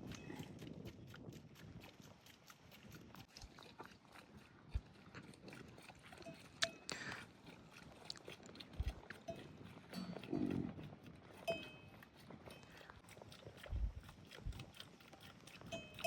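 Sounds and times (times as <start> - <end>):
livestock bells clinking: 9.3 - 10.5, 11.4 - 12.9, 15.6 - 16.0
low animal call: 10.0 - 10.8.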